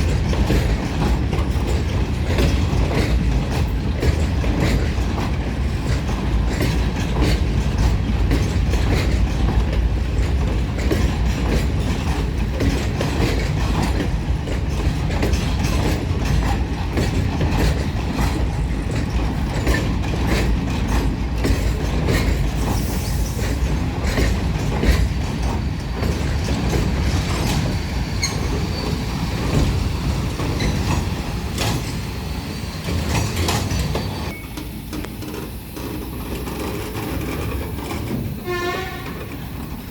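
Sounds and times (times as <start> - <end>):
train wheels clattering: 0.0 - 39.9
high wheel squeal: 27.4 - 29.4, 30.5 - 37.3.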